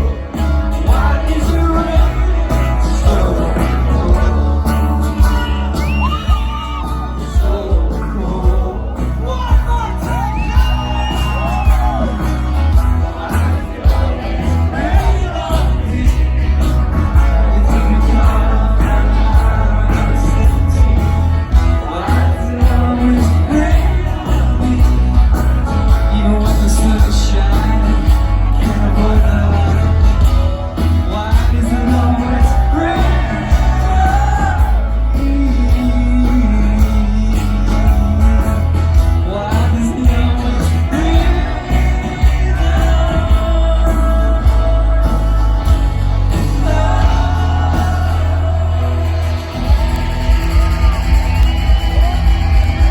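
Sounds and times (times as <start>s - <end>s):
bass: 0.0s - 52.9s
drums: 0.0s - 52.9s
person singing: 0.0s - 52.9s.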